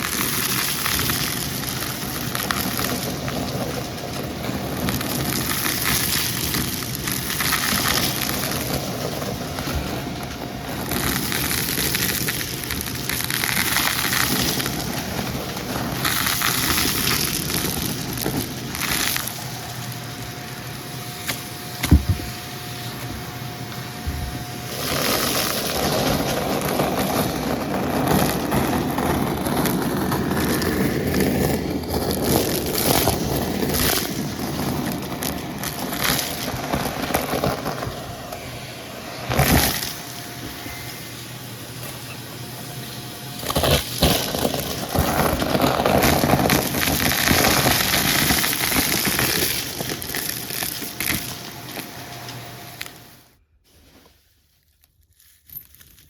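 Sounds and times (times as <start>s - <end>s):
vacuum cleaner running: 0.0s - 53.8s
debris crackling through vacuum: 0.0s - 54.0s
loud knock: 21.8s - 22.3s.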